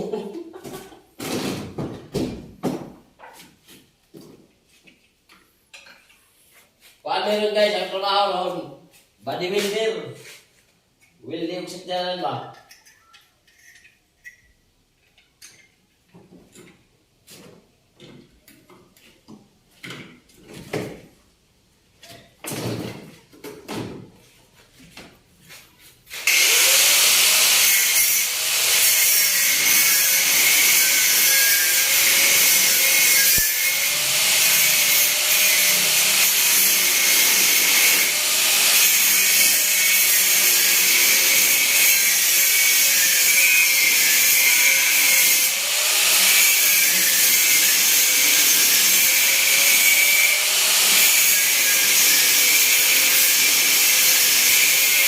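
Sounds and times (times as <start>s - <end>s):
power tool motor running: 26.2s - 29.0s, 45.3s - 54.6s.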